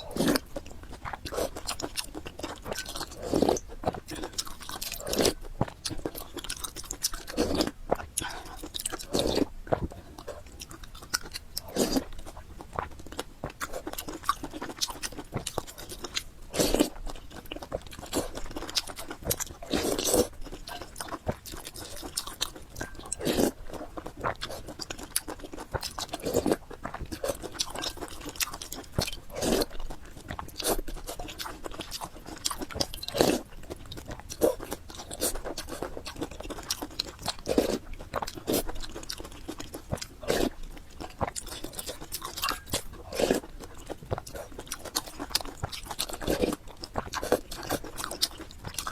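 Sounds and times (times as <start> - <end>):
chewing noodles: 0.0 - 48.9.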